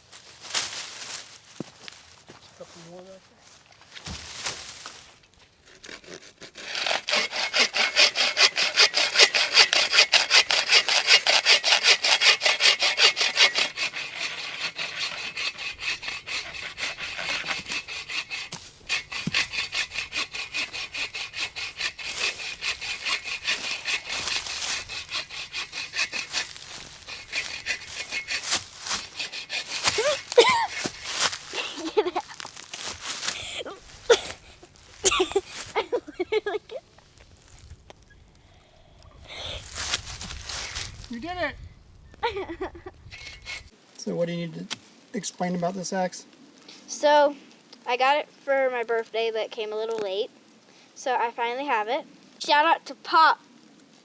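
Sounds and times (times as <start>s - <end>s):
pull saw cutting wood: 5.7s - 36.8s, 39.3s - 41.1s, 43.1s - 43.7s.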